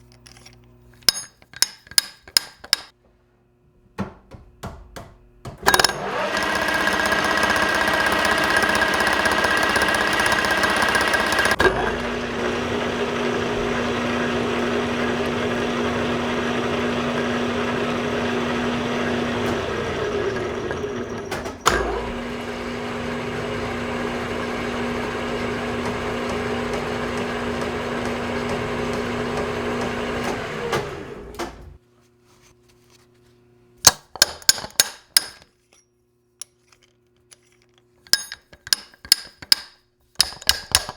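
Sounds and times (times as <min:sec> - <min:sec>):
metal lathe running: 0:05.7 - 0:31.8.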